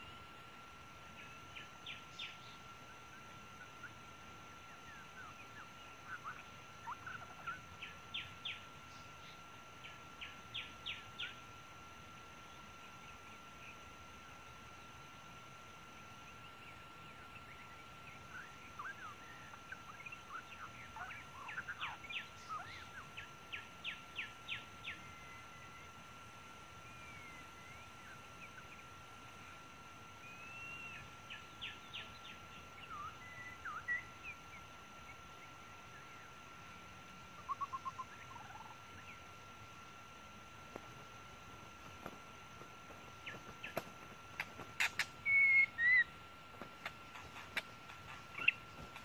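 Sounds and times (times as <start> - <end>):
bird trill: 16.4 - 25.9, 30.2 - 36.4, 37.4 - 39.3, 42.9 - 49.0
bird chirps and whistles: 44.8 - 46.1.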